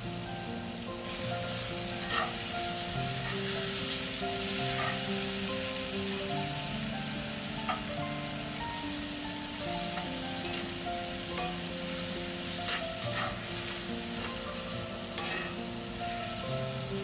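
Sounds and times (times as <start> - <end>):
mushrooms sizzling in a skillet: 0.0 - 17.0
soft background music: 0.0 - 17.0
metal tongs clicking on pan: 2.0 - 2.4, 4.7 - 5.0, 7.7 - 7.9, 10.0 - 10.8, 11.4 - 11.7, 12.6 - 14.4, 15.2 - 15.6.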